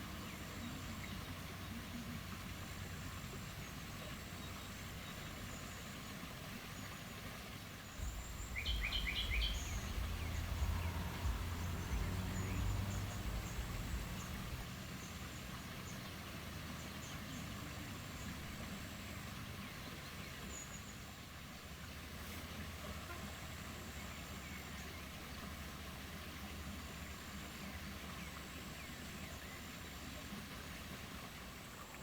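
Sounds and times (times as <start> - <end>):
steady hiss: 7.9 - 18.5
low rumble: 8.0 - 15.2
bird chirping: 8.0 - 16.0
faint high ticking calls: 8.0 - 16.1.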